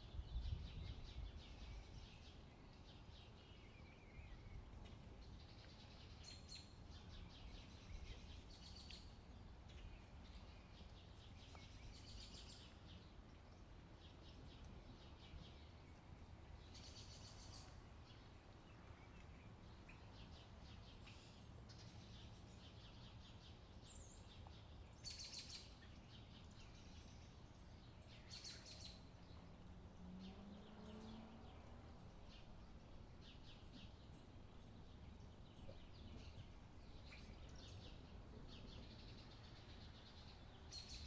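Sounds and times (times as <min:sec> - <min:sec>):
low wind rumble: 0:00.0 - 0:06.0
bird chirping trills: 0:19.1 - 0:41.0.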